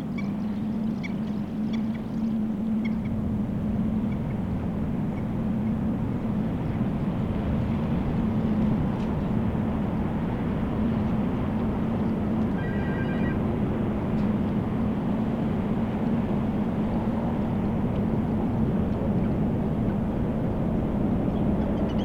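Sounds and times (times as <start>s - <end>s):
ship machinery drone: 9.6s - 17.7s
rapid electronic chirp: 12.5s - 13.4s.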